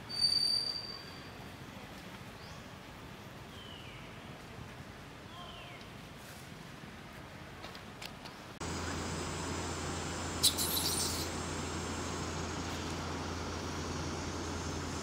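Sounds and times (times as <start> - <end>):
low hum: 8.6 - 15.0
rapid bird call: 10.3 - 11.6.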